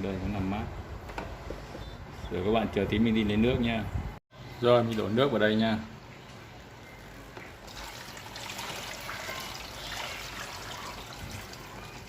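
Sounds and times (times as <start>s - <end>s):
water pouring into tank: 7.6s - 12.0s.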